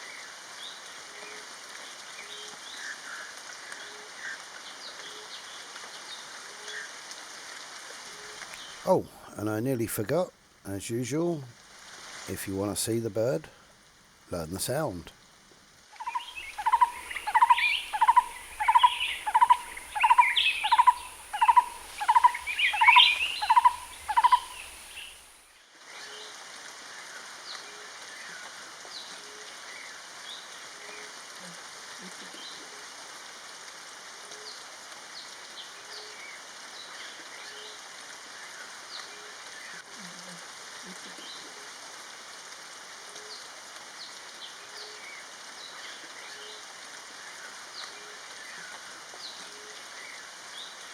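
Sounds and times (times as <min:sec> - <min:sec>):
forest ambience hiss: 0:00.0 - 0:50.9
barbet ringing call notes: 0:16.0 - 0:24.6
faint repeated low bird notes: 0:16.0 - 0:25.0
thin high bird chirps: 0:16.0 - 0:25.2.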